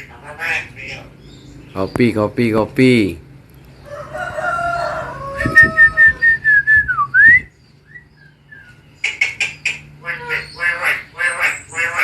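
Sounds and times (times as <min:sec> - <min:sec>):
harsh chattering bird calls: 0:00.0 - 0:06.4, 0:07.4 - 0:12.0
bird whistling: 0:05.4 - 0:09.8.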